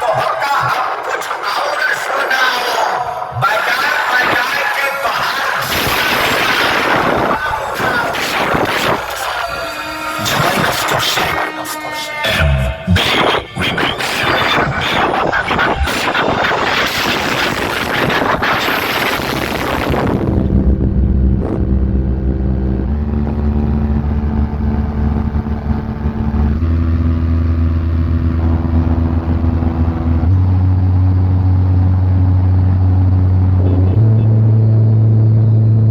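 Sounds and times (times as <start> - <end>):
loud music over loudspeakers: 2.6 - 20.5
long deep bass notes: 12.2 - 35.9.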